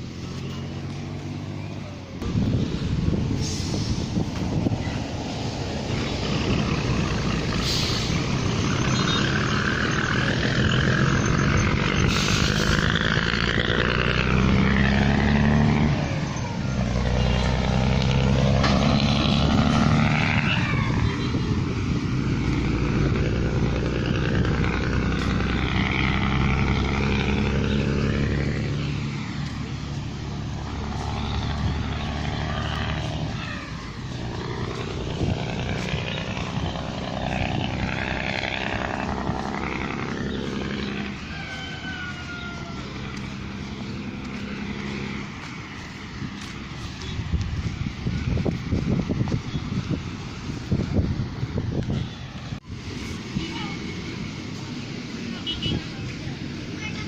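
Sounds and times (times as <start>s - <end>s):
road and wind noise: 0.0s - 57.0s
vehicle engine revving: 0.0s - 57.0s.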